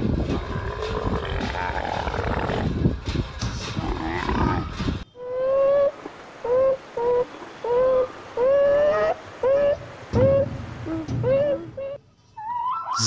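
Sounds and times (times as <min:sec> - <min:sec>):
camels grunting: 0:00.0 - 0:05.0
sea otter squealing: 0:06.5 - 0:13.0.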